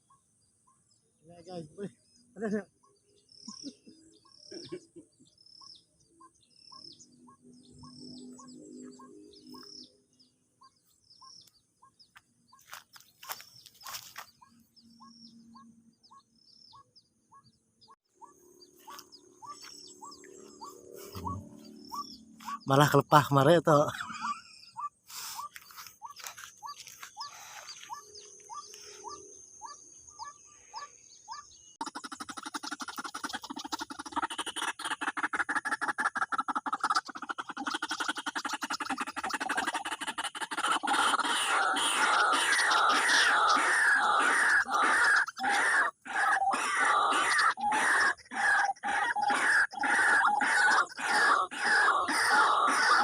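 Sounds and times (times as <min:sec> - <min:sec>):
waterhen calling: 0:31.8 - 0:53.0.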